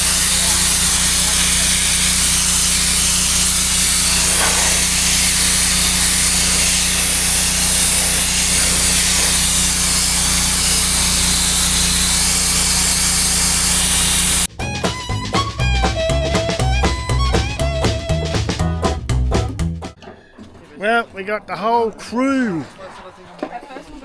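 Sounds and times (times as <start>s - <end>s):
sandblaster hissing: 0.0s - 18.5s
music: 14.5s - 20.0s.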